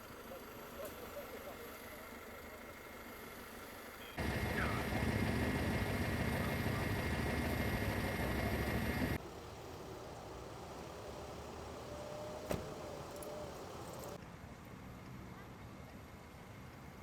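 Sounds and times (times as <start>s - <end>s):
heavy vehicle engine rumbling: 4.2s - 9.2s.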